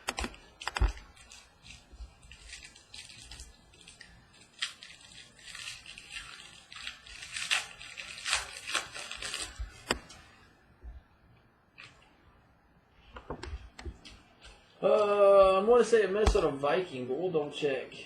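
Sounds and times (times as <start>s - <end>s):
cards being handled: 0.0s - 10.3s
foil wrapper crinkling: 0.0s - 10.4s.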